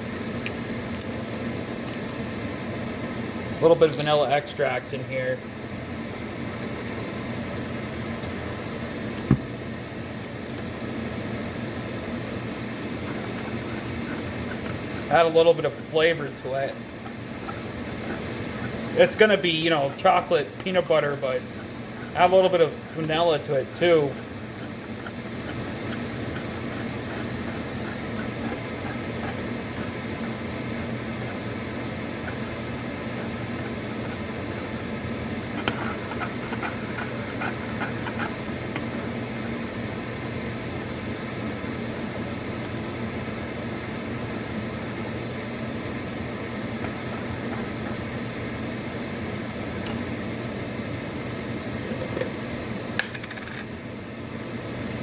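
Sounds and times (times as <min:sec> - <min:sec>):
mechanical hum with low buzz: 0:00.0 - 0:55.0
motor humming: 0:20.6 - 0:40.0.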